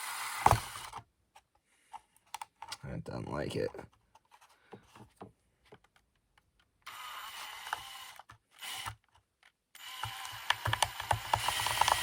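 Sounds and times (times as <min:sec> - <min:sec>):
drill boring into plastic: 0:00.0 - 0:01.0, 0:06.9 - 0:09.0, 0:09.8 - 0:12.0.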